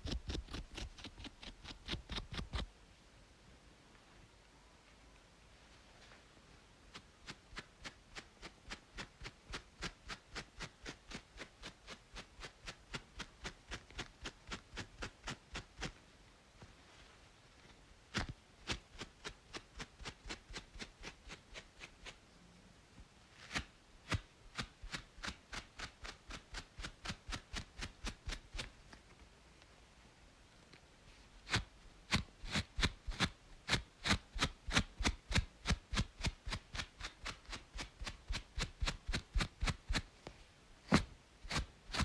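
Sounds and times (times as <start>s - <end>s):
scalp scratching: 0.0s - 2.7s, 6.9s - 16.0s, 18.1s - 22.2s, 23.3s - 28.7s, 31.5s - 40.1s, 40.9s - 42.0s
faint white noise hiss: 0.0s - 42.0s.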